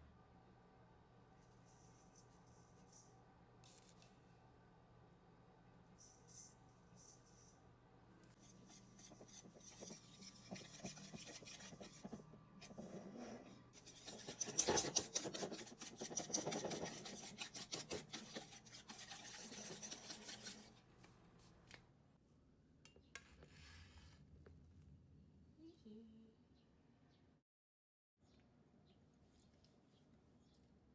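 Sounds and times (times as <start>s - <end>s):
kitchen utensil scraping: 8.4s - 20.7s.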